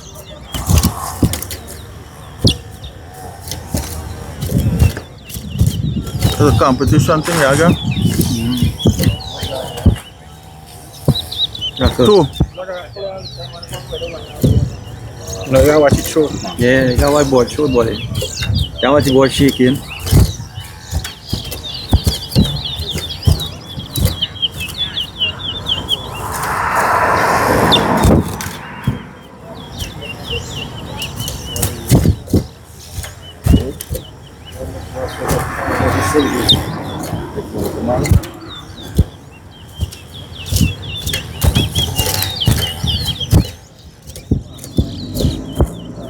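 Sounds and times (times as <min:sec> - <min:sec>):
finch singing: 0:00.0 - 0:46.0
rushing noise: 0:25.6 - 0:29.6, 0:34.6 - 0:39.0.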